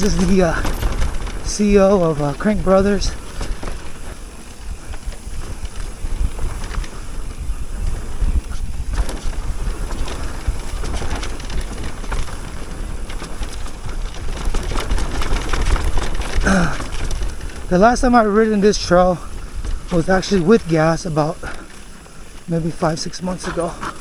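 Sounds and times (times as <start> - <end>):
bike clicks and rattles: 0.0 - 24.0
bike tyres rolling on dirt: 0.0 - 24.0
wind buffeting microphone: 0.0 - 24.0.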